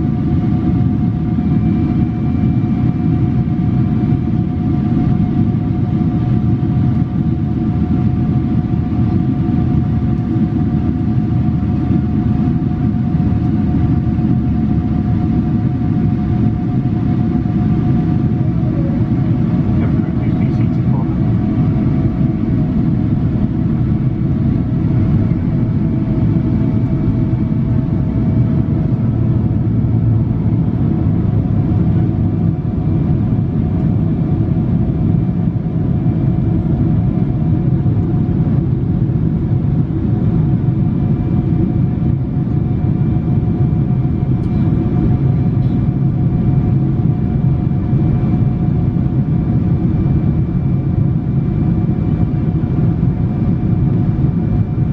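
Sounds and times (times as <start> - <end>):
jet engine rumble: 0.0 - 54.9.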